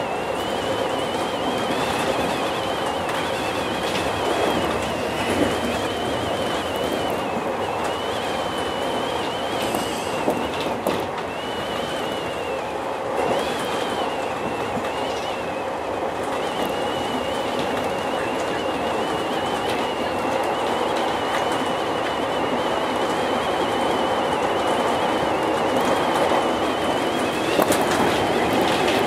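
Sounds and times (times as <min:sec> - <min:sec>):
train wheels rumbling on track: 0:00.0 - 0:29.0.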